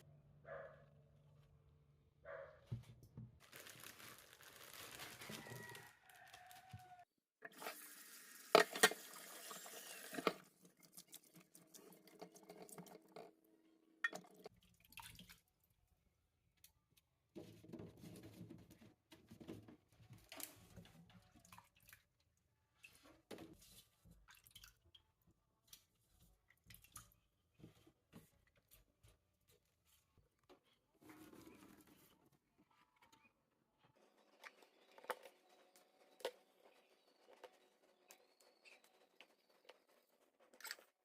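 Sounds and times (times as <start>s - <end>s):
running water: 7.5s - 13.3s.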